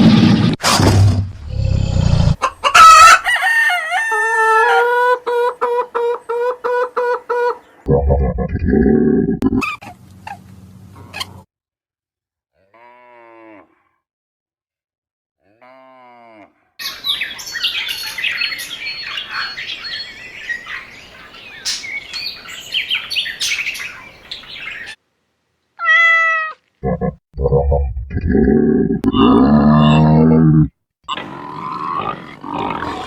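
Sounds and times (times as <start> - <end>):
many birds chirping: 16.8 - 25.0.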